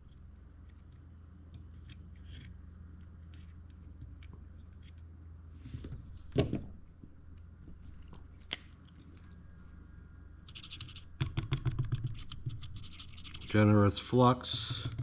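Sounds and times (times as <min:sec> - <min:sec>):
low hum: 0:00.0 - 0:11.2.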